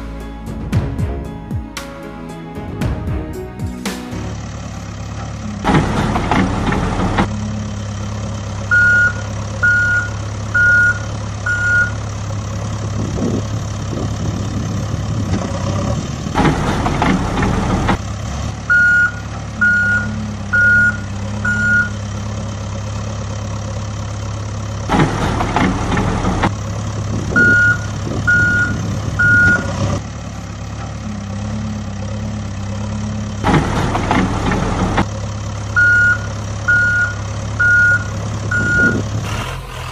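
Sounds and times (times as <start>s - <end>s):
diesel truck engine idling: 4.1s - 39.9s
reversing alarm beeping: 8.7s - 12.0s, 18.7s - 22.0s, 27.3s - 30.0s, 35.8s - 39.2s.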